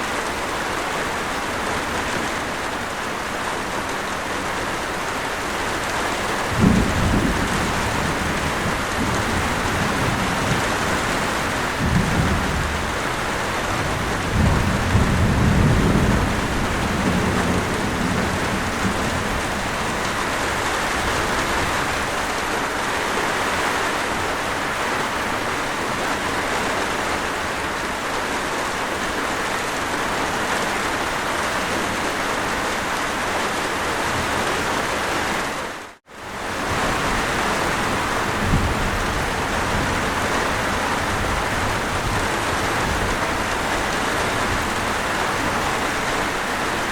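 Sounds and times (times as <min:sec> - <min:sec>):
heavy rainfall: 0:00.0 - 0:46.9
low roll of thunder: 0:06.3 - 0:22.1, 0:36.4 - 0:45.9.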